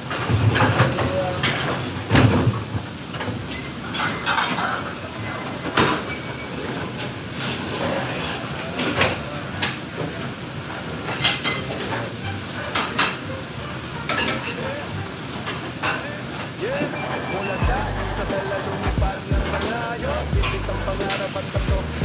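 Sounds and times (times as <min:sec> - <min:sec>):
steady hiss: 0:12.9 - 0:22.0.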